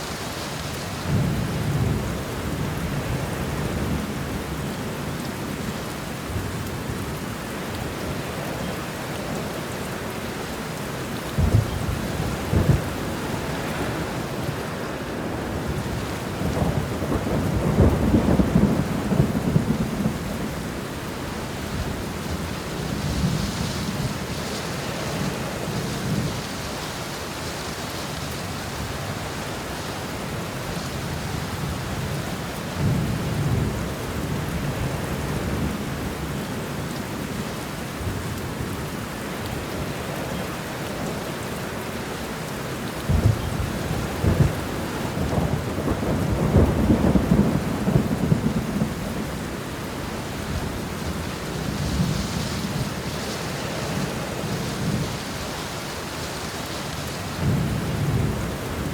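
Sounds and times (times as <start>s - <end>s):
steady rain: 0.0s - 58.9s
rolling thunder: 11.3s - 21.2s, 43.0s - 53.2s
sharp thunderclaps: 43.1s - 49.0s.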